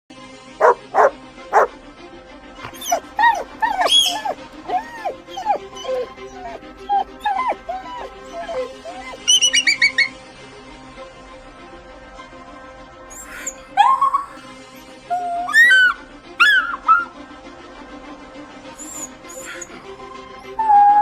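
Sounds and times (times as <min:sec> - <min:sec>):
background music: 0:00.1 - 0:21.0
dog barking and yelping: 0:00.6 - 0:01.7, 0:02.6 - 0:10.1, 0:13.1 - 0:14.5, 0:15.1 - 0:17.1, 0:18.8 - 0:21.0.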